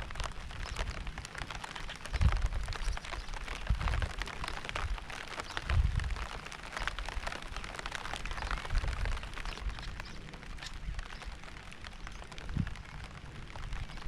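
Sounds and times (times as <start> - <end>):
steady rain patter: 0.0 - 14.0.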